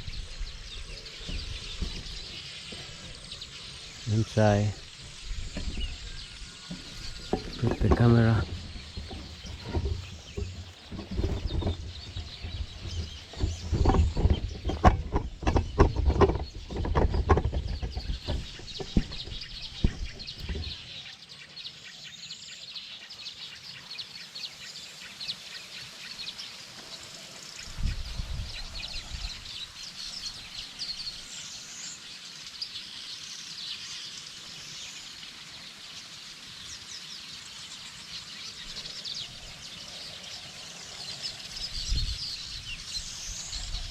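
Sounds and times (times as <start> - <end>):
small birds chirping: 0.0 - 43.9
camera handling knocks and rustling: 6.7 - 20.8.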